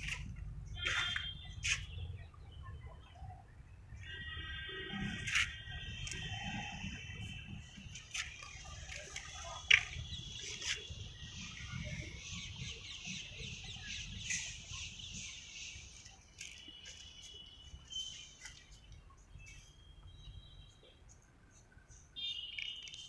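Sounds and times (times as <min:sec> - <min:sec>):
birds chirping: 0:05.8 - 0:23.0.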